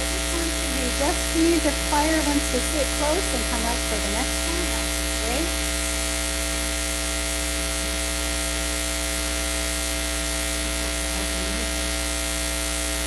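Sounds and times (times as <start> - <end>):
electrical buzz and hiss: 0.0 - 13.0.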